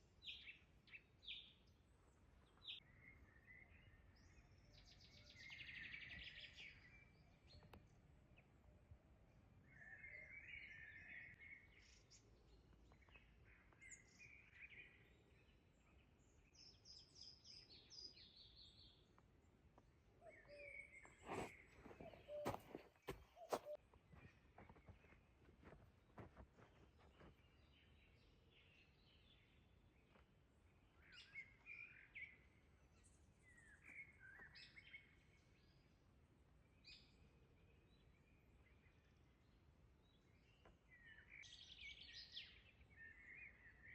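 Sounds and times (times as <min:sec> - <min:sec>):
birds chirping and trilling: 0:20.2 - 0:35.8.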